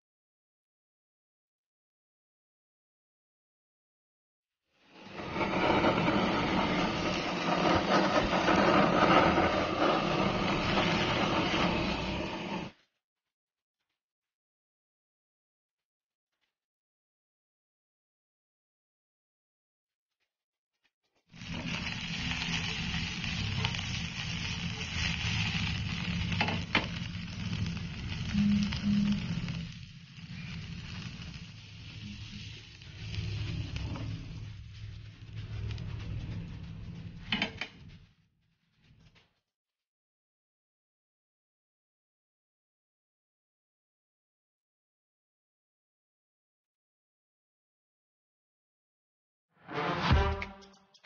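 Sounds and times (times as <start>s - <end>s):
food sizzling on grill pan: 21.4s - 34.1s.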